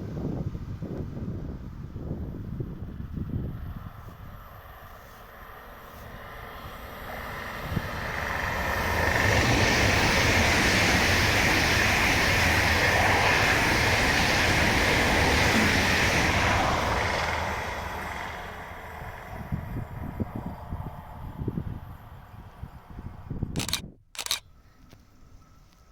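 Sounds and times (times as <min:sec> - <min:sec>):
train passing at speed: 0:00.0 - 0:23.8.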